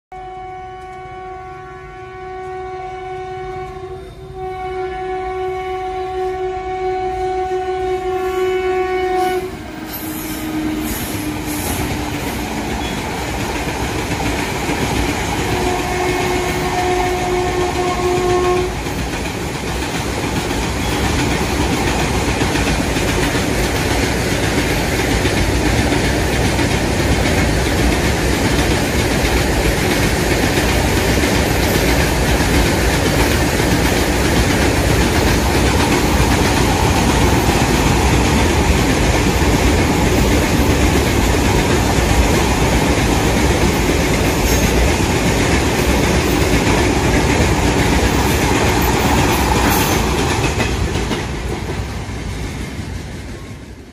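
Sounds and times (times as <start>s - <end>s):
train horn: 0.1s - 13.0s, 15.4s - 18.8s
train rumbling on rails: 0.2s - 53.9s.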